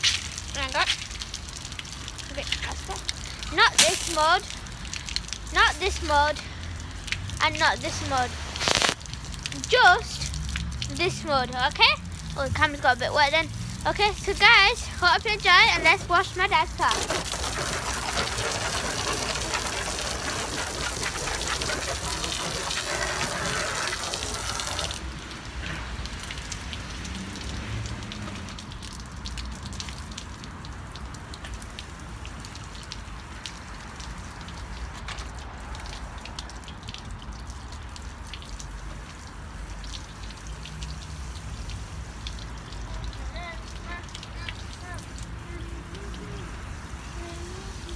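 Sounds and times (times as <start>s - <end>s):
water droplets pattering: 0.0s - 47.9s
hose nozzle spraying water: 2.3s - 10.3s, 10.9s - 25.2s.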